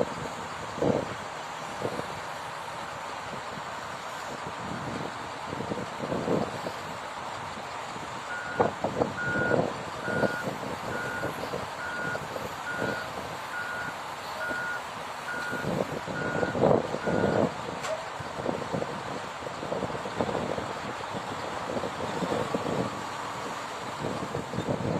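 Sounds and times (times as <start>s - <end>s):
engine noise: 0.0s - 24.9s
reversing alarm beeping: 8.3s - 17.4s.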